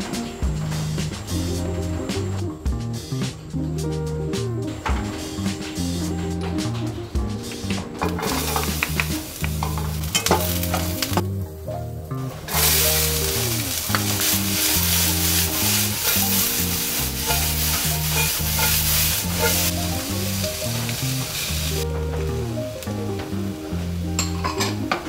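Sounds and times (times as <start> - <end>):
background music: 0.0 - 25.0
onion sizzling in frying pan: 5.0 - 25.0.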